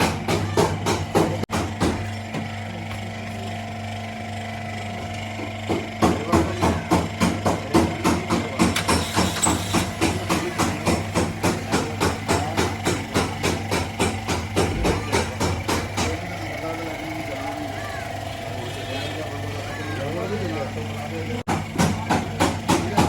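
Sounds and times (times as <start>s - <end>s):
sharp knocks: 5.7s - 16.3s.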